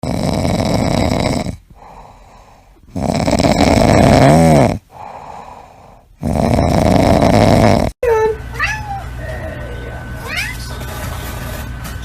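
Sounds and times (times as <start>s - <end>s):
pet snoring loudly: 0.0s - 8.0s.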